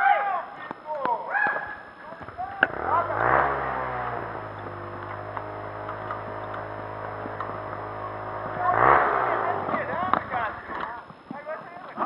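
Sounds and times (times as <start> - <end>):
motorcycle engine idling: 2.2 - 11.0
faint clicks: 4.5 - 8.0.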